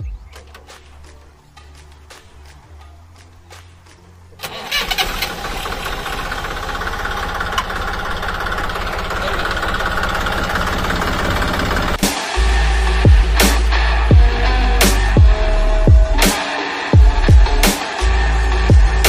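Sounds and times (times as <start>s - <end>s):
diesel tractor engine running: 4.4s - 12.0s.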